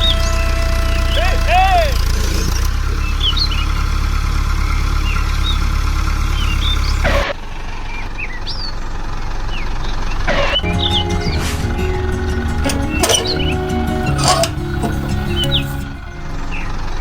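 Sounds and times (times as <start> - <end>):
small engine idling: 0.0 - 17.0
bird chirps: 10.6 - 17.0.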